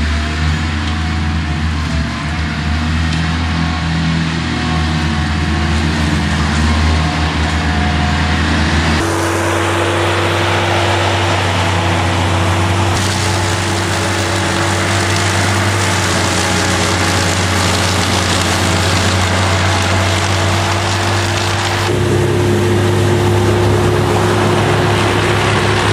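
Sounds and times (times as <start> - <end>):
loader engine running: 0.0 - 25.9
steady higher hum: 0.0 - 25.9.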